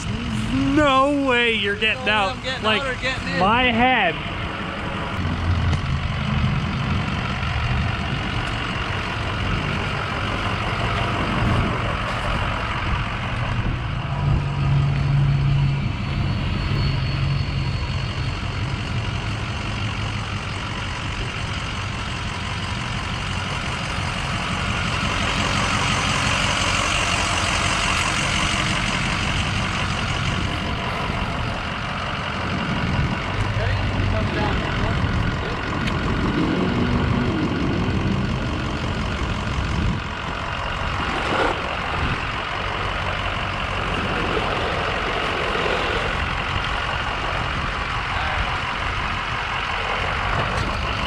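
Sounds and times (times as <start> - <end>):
diesel pickup engine running: 0.0 - 51.0.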